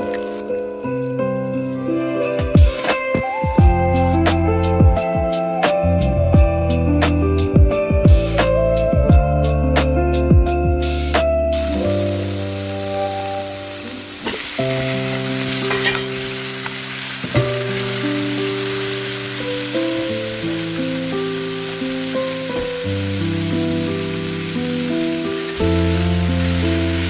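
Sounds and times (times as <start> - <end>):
soft background music: 0.0 - 27.0
food sizzling in a pan: 11.5 - 27.0
utensil clicking in a pan: 14.2 - 22.9.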